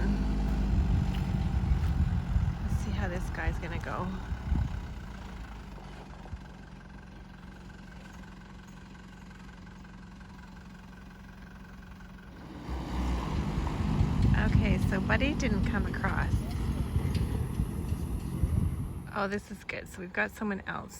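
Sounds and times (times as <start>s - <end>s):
loud low rumble: 0.0s - 5.8s, 12.3s - 19.5s
car engine idling: 0.0s - 20.9s.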